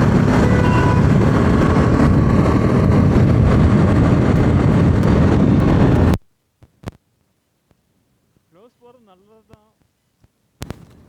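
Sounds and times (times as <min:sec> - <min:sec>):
motorcycle engine riding: 0:00.0 - 0:06.1.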